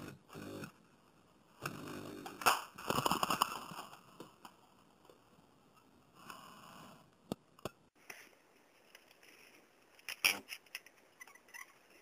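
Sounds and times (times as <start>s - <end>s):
handling rustling noises: 8.0s - 12.0s.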